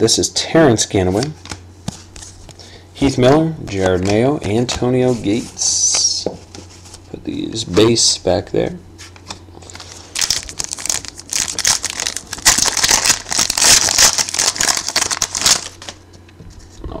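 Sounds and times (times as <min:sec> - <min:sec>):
foil wrapper crinkling and tearing: 0:09.6 - 0:16.0.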